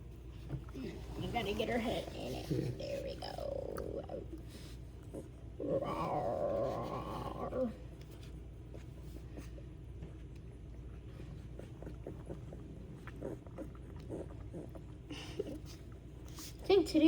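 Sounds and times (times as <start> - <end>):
puppies lapping milk: 0.0 - 17.0
puppy whining: 5.0 - 8.0.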